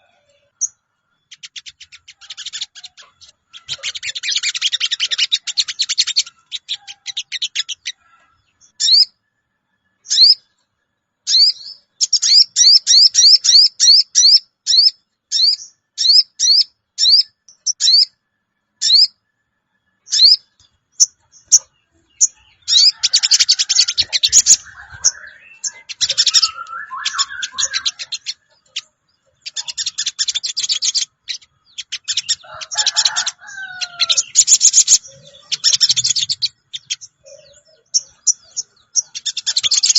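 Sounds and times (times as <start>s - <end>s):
fast chattering bird trills: 1.3s - 8.0s, 21.0s - 39.9s
rising bird chirps: 20.0s - 39.9s.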